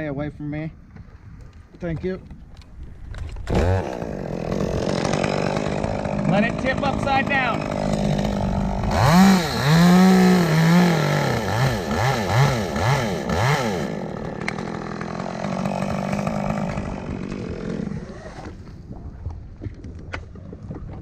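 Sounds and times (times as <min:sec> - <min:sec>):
chainsaw cutting wood: 0:03.1 - 0:18.9.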